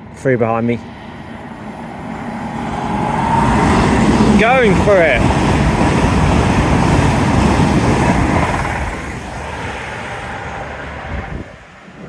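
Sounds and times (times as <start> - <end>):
train passing at speed: 0.0 - 12.0.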